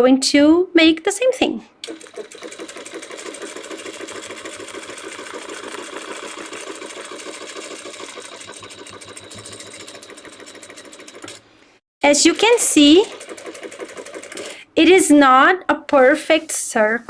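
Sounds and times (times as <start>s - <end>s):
sewing machine stitching: 1.8s - 11.6s, 12.2s - 14.6s.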